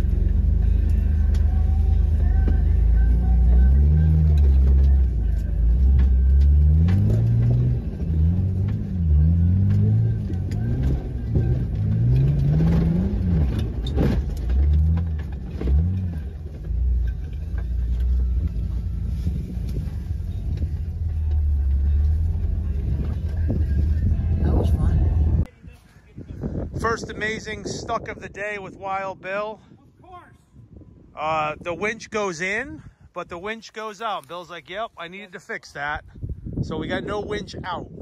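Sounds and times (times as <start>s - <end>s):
jeep engine revving: 0.0s - 25.5s.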